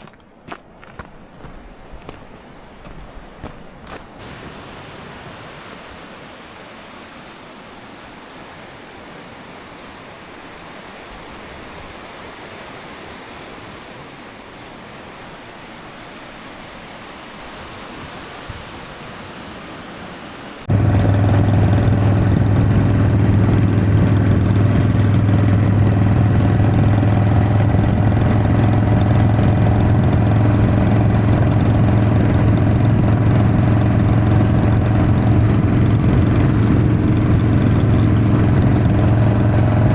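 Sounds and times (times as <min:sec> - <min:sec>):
motorcycle engine running: 0:20.7 - 0:39.9.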